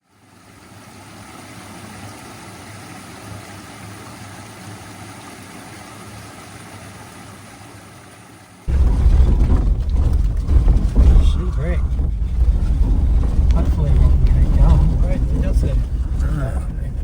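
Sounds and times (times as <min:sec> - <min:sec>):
engine-like rumble: 0:08.7 - 0:17.0.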